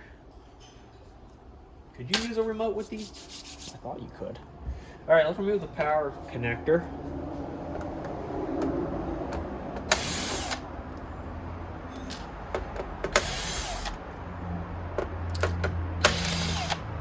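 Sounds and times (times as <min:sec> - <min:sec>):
electric screwdriver whirring: 0:09.9 - 0:10.7, 0:13.1 - 0:14.0, 0:16.0 - 0:16.9.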